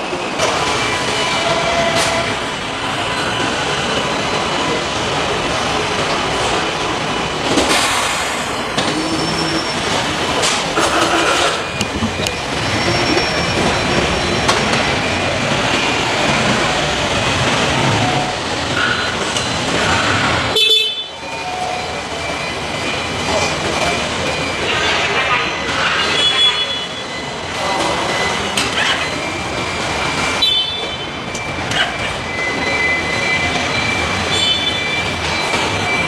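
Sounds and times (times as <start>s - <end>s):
clanks and clicks: 9.9s - 15.0s.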